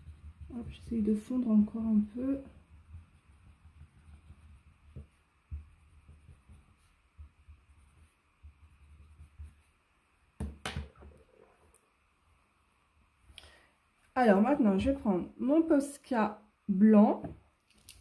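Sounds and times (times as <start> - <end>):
pencil scratching on paper: 0.0 - 9.8.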